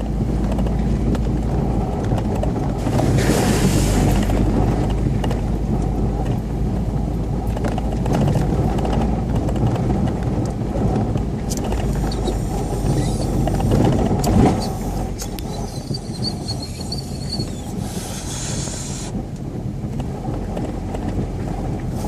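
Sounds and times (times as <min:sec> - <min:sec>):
vehicle engine running: 0:00.0 - 0:22.0
short rush of noise: 0:02.8 - 0:04.3.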